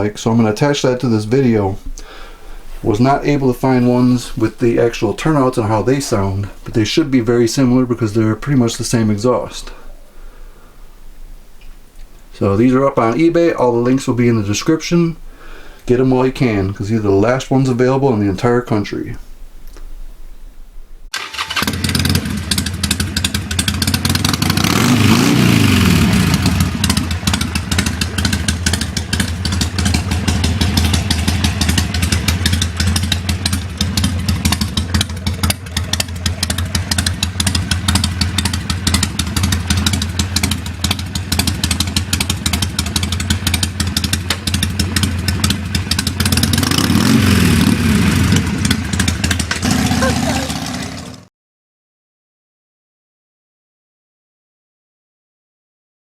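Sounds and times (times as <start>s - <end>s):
motorcycle engine idling lumpy: 21.2s - 51.2s
motorcycle throttle blips: 21.2s - 51.2s.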